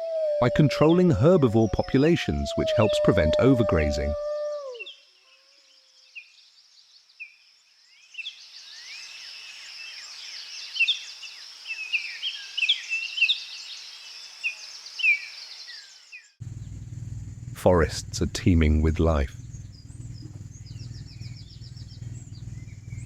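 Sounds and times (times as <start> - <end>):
small birds chirping and whistling: 19.2 - 23.0.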